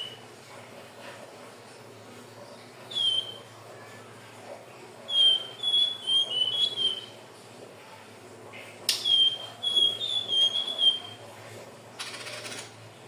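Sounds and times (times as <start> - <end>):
bird singing high whistled notes: 2.9 - 3.4, 5.1 - 7.2, 9.0 - 11.2.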